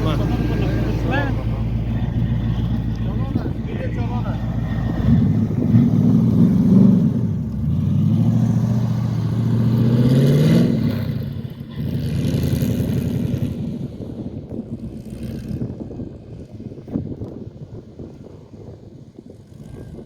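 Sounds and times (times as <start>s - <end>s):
car engine revving: 0.0s - 16.9s.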